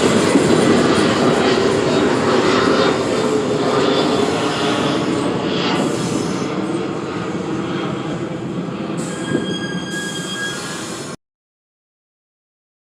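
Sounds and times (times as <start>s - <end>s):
subway train wheels rumbling: 0.0s - 11.2s
high wheel squeal: 9.0s - 11.2s.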